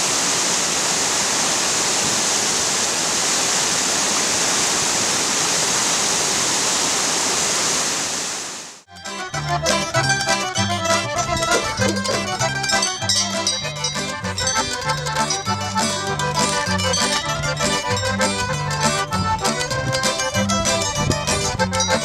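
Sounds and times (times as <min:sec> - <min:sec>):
instrumental music with stepping bass: 0:08.9 - 0:22.0.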